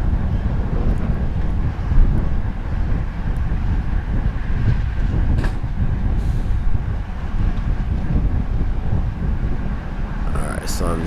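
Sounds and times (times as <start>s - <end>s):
bicycle tyre road noise: 0.0s - 11.0s
wind on microphone: 0.0s - 11.0s.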